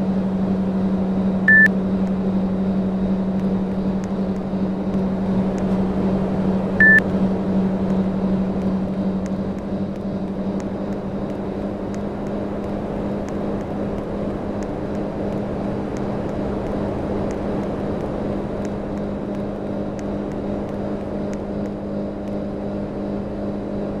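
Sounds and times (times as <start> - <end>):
air conditioner humming: 0.0 - 24.0
faint repeating tick: 8.6 - 22.4.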